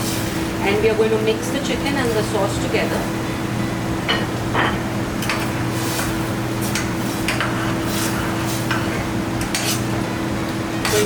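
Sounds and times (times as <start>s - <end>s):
steady low hum: 0.0s - 11.0s
utensil scraping in a pan: 5.2s - 10.0s, 10.8s - 11.0s.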